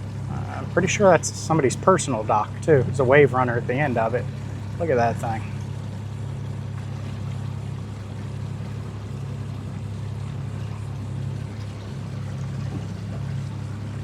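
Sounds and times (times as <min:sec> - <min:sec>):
motorboat engine humming: 0:00.0 - 0:14.0
water noise: 0:00.0 - 0:14.0.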